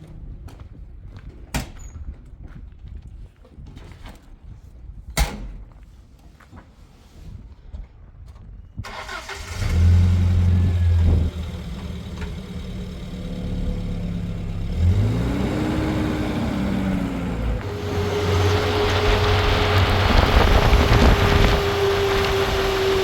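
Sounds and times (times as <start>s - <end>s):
vehicle engine starting and revving: 8.9s - 23.0s.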